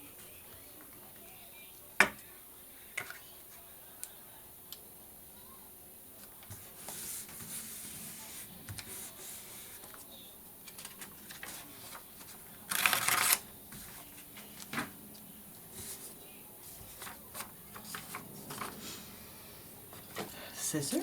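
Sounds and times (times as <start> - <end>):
paper rustling: 6.4 - 15.0, 15.6 - 19.0
loud noisy paper rustle: 10.7 - 14.9, 15.7 - 19.1.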